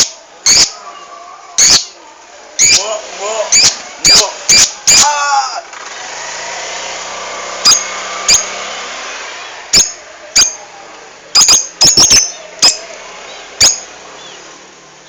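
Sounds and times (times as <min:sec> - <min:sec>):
lovebird shrill chirps: 0:00.0 - 0:00.9, 0:01.6 - 0:02.0, 0:02.6 - 0:02.8, 0:03.5 - 0:05.1, 0:07.6 - 0:08.5, 0:09.7 - 0:10.6, 0:11.4 - 0:12.8, 0:13.6 - 0:14.4.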